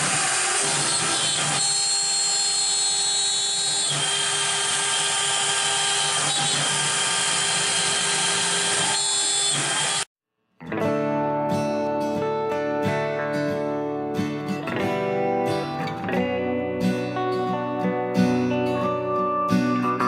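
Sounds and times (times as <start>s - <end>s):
router spindle high whine: 0.0s - 10.1s.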